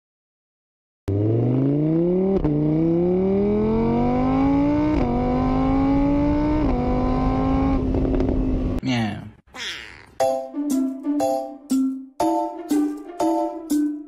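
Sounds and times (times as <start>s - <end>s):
car engine accelerating: 1.1s - 8.8s.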